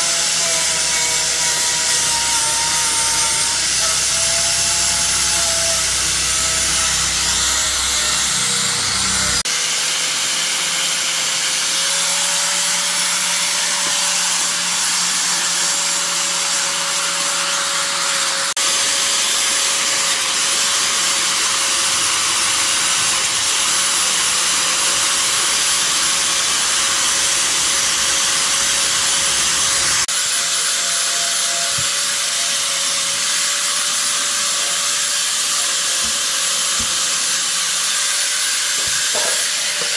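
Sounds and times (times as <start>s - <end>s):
electric power tool grinding: 0.0s - 39.9s.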